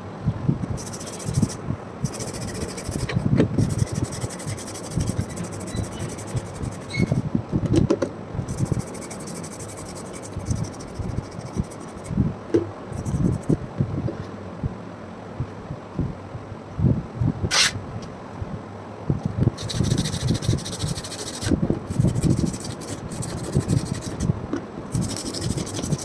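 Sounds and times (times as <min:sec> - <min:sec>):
rubbing and scraping handling noises: 0:00.6 - 0:07.3, 0:08.5 - 0:14.4, 0:17.5 - 0:17.8, 0:19.5 - 0:26.0.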